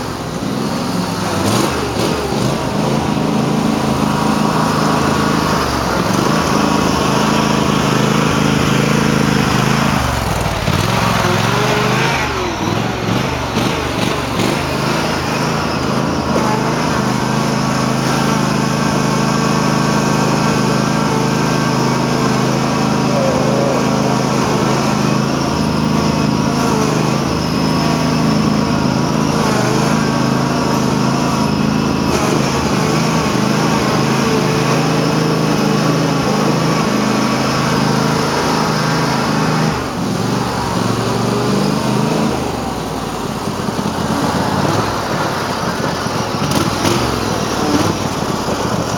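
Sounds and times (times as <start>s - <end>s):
garden tractor engine revving: 0.0s - 48.9s
person talking: 23.0s - 24.6s.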